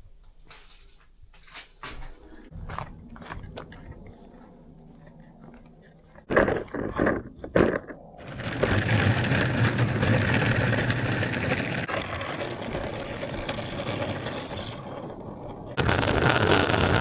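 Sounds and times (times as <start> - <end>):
longboard wheels rolling on pavement: 6.2 - 17.0.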